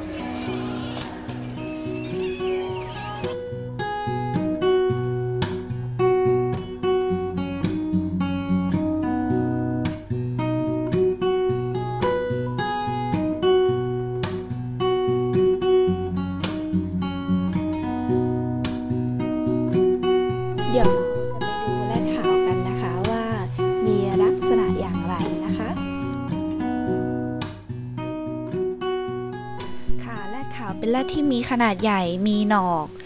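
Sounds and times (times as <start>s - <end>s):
acoustic guitar plucking: 20.4s - 26.2s, 29.5s - 33.0s.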